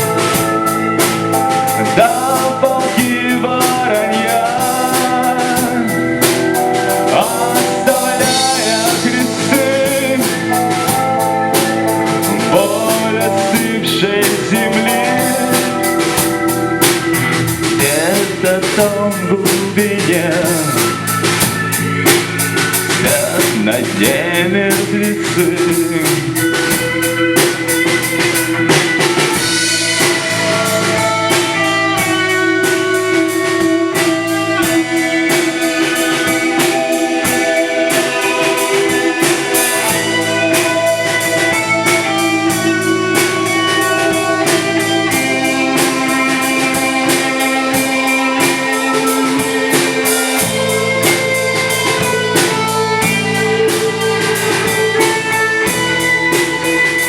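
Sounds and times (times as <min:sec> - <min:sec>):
bass guitar: 0:00.0 - 0:57.0
drum kit beat: 0:00.0 - 0:57.0
sustained melody line: 0:00.0 - 0:57.0.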